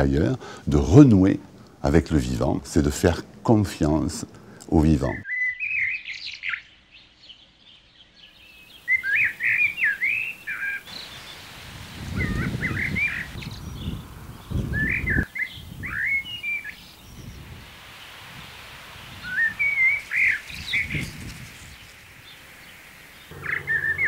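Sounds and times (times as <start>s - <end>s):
small birds singing: 5.0s - 24.0s
low rumble: 23.3s - 24.0s.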